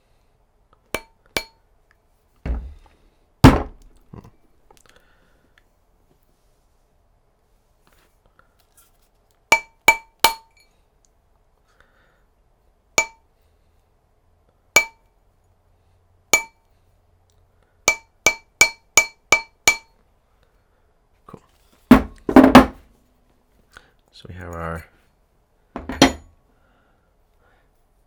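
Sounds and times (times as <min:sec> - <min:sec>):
mallet tapping metal ring: 0:01.0 - 0:01.6, 0:09.6 - 0:10.6, 0:13.0 - 0:13.2, 0:14.8 - 0:15.1, 0:16.4 - 0:16.6, 0:17.9 - 0:19.9, 0:25.8 - 0:26.3.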